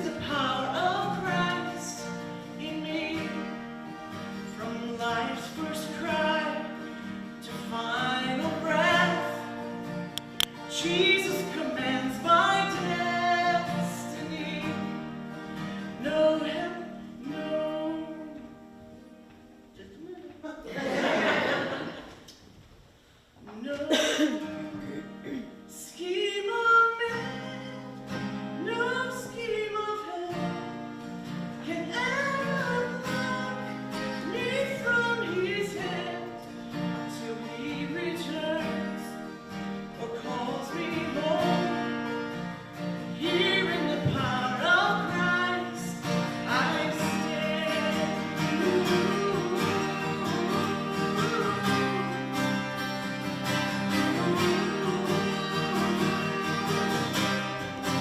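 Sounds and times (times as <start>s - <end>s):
guitar chords: 0.0s - 20.2s, 23.9s - 58.0s
person singing worship song: 43.2s - 52.8s, 53.8s - 58.0s.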